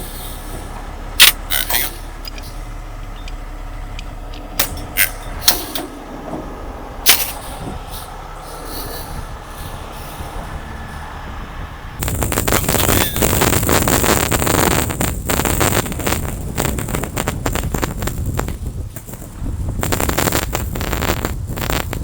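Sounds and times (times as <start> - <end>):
diesel engine running: 0.0 - 22.0
sharp metal clanks: 1.2 - 2.6, 4.0 - 6.1, 7.0 - 10.3.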